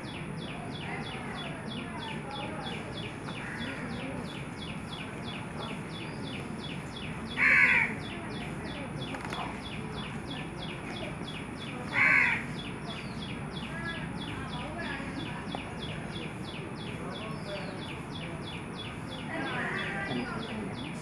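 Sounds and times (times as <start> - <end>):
outdoor background noise: 0.0 - 21.0
bird harsh caws: 3.4 - 4.0, 7.3 - 8.1, 11.9 - 12.7.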